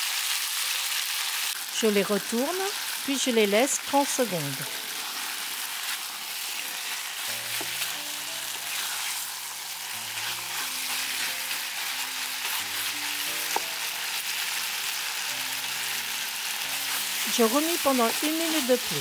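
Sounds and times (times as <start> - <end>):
meat sizzling in hot oil: 0.0 - 19.0
soft background music: 1.6 - 19.0
spatula stirring in a pan: 4.9 - 18.6.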